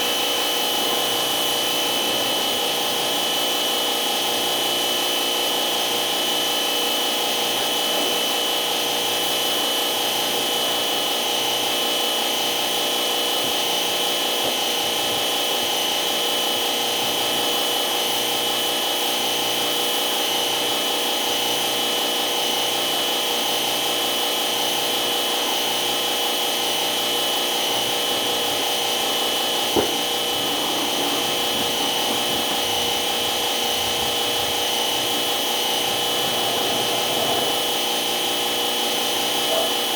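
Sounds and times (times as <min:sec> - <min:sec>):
machine whining: 0:25.0 - 0:39.9.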